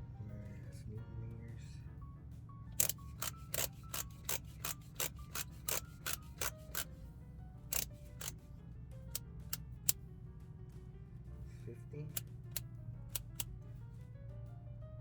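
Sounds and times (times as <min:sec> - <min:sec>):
background music: 0:00.0 - 0:15.0
torque wrench clicking: 0:02.8 - 0:06.9, 0:07.7 - 0:08.4, 0:12.1 - 0:13.5.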